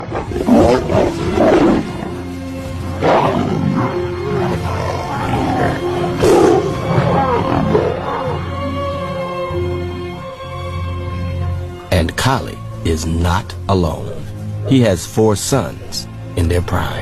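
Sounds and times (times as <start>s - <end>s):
lions snarling and roaring: 0.0s - 9.9s
background music with held notes: 0.0s - 17.0s.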